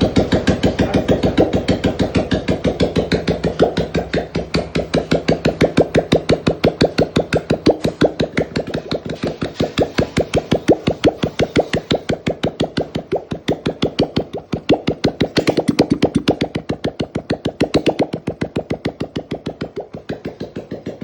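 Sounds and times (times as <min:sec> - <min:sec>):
single-cylinder engine idling: 0:00.0 - 0:05.6.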